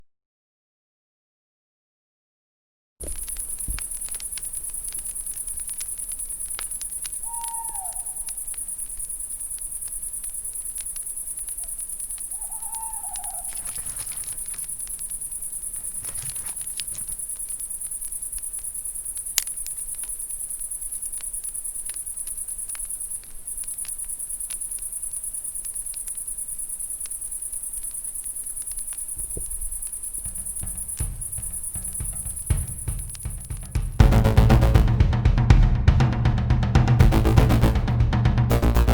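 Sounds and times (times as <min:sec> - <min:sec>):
crickets chirring: 0:03.0 - 0:38.0
campfire crackling: 0:03.0 - 0:38.9
owl hooting: 0:07.0 - 0:08.7, 0:11.4 - 0:17.1, 0:29.2 - 0:34.0.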